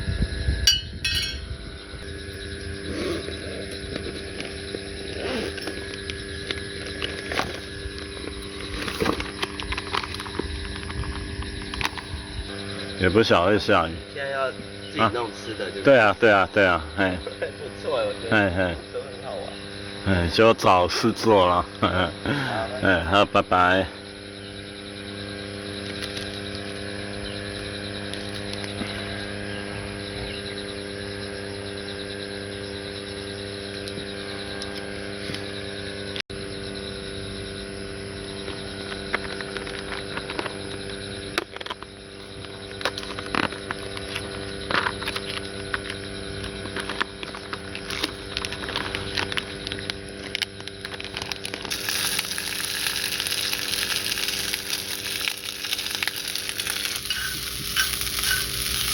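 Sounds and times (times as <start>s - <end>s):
steady low hum: 0.0s - 58.9s
food sizzling in a frying pan: 51.7s - 58.9s
cooking utensils clicking: 51.8s - 58.9s.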